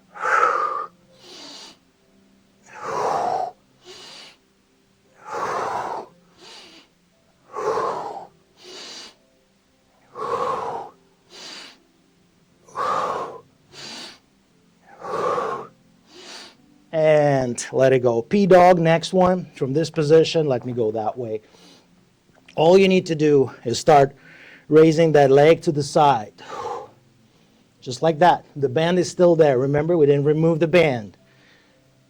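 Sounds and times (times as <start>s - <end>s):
man breathing hard: 0.0s - 1.8s, 2.7s - 4.4s, 5.2s - 9.2s, 10.0s - 11.8s, 12.7s - 14.2s, 14.8s - 16.6s, 24.2s - 24.7s, 26.4s - 27.8s, 31.2s - 31.9s.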